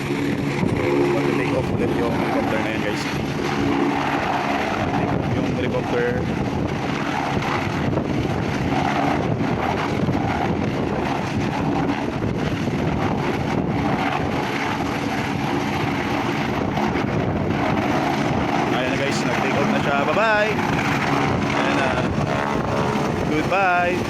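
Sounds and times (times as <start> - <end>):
helicopter engine and rotor: 0.0 - 24.0.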